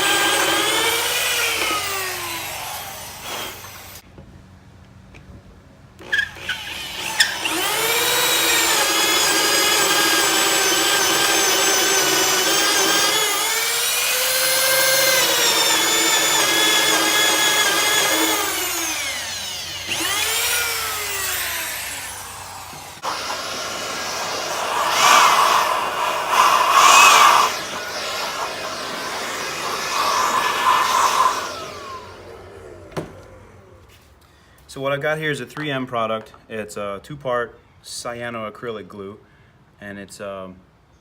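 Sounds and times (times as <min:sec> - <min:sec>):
electric drill boring into wood: 0:00.0 - 0:04.0, 0:06.0 - 0:33.8.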